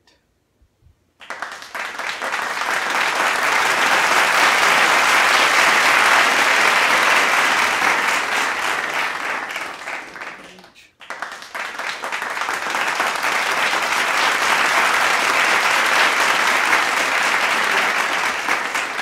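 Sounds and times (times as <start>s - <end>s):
crowd applauding: 1.2s - 19.0s.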